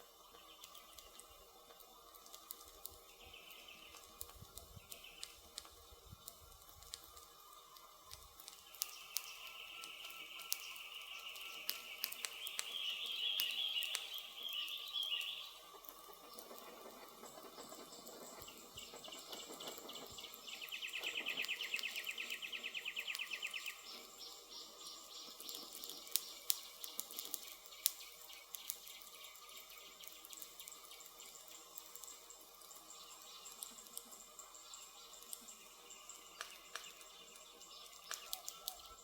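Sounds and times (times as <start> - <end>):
campfire crackling and popping: 0.0 - 39.0
forest ambience: 0.0 - 39.0
wildlife chirps: 0.0 - 39.0.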